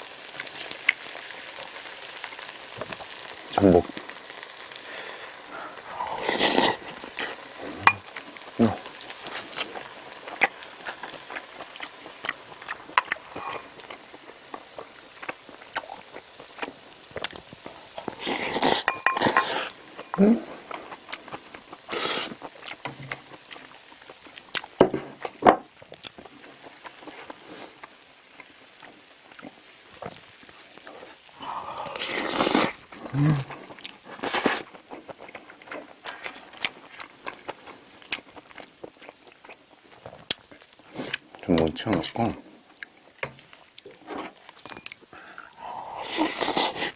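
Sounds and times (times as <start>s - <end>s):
wet chewing: 4.9s - 46.9s
wet chewing mouth clicks: 15.2s - 24.7s.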